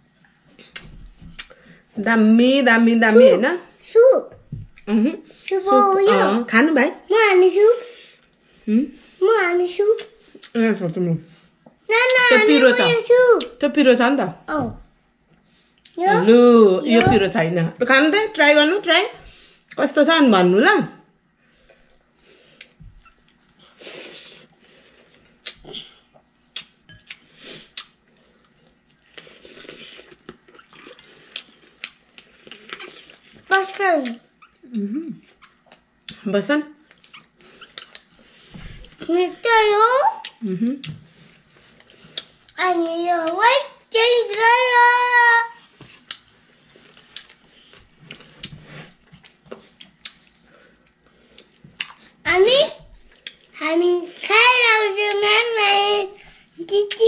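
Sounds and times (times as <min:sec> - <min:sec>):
chewing and lip-smacking: 0:26.2 - 0:34.6, 0:36.8 - 0:39.0, 0:40.2 - 0:43.4, 0:45.9 - 0:52.2, 0:53.0 - 0:53.6.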